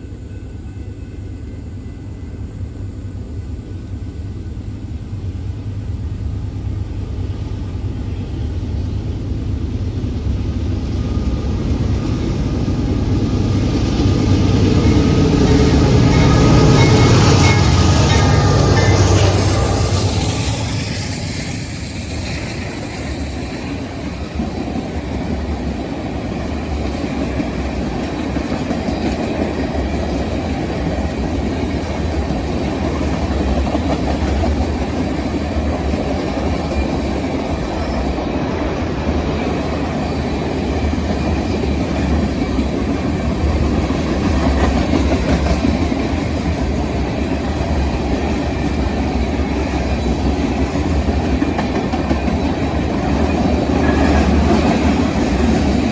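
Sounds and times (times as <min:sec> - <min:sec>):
train rumbling past: 0:00.0 - 0:55.9
wheels clacking on rail joints: 0:39.0 - 0:55.9.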